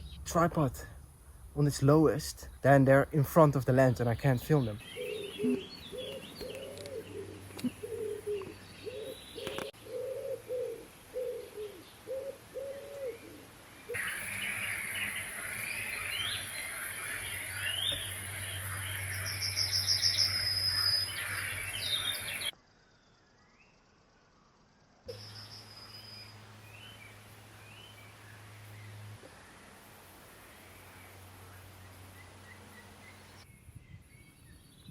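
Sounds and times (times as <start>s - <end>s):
songbirds chorus: 0.0s - 23.8s, 25.1s - 34.9s
pigeon cooing: 4.8s - 14.1s
steady high hiss: 7.9s - 22.5s, 25.1s - 33.5s.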